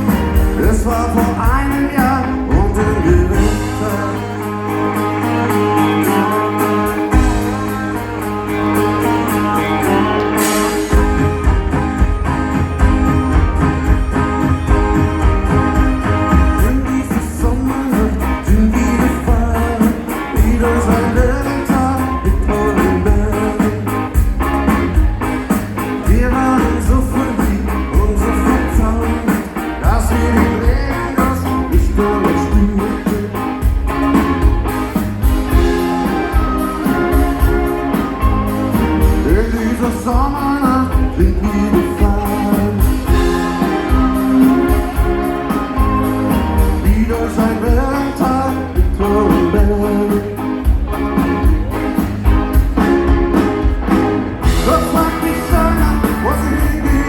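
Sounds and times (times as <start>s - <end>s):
person singing: 0.0s - 11.2s, 11.8s - 24.2s, 26.0s - 33.8s, 35.6s - 50.7s, 54.4s - 57.0s
rock band playing live: 0.0s - 57.0s.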